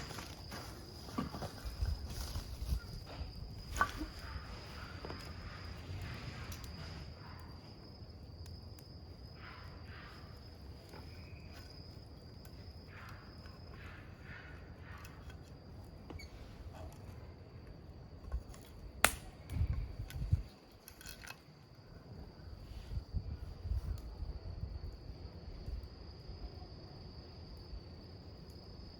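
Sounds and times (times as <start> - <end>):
wood snapping: 18.2 - 21.5
campfire crackling and popping: 18.5 - 20.1.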